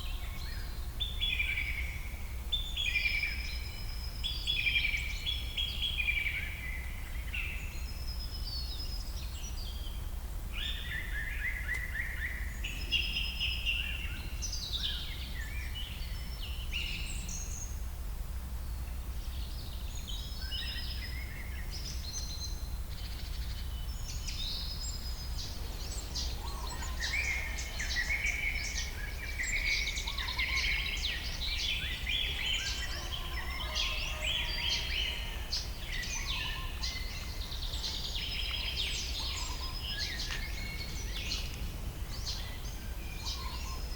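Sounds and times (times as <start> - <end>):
songbirds singing: 0.0 - 17.9, 18.6 - 43.9
low rumble: 25.2 - 29.3.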